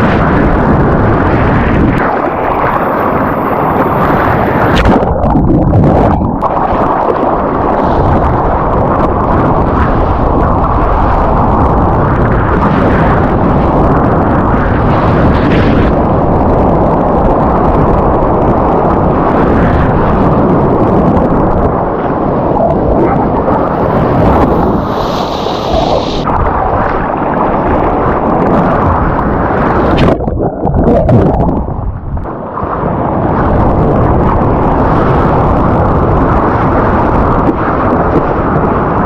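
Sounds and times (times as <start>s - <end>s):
rushing surf water: 0.0s - 39.0s
wind buffeting microphone: 0.0s - 39.0s
hiss of spray: 24.8s - 26.2s.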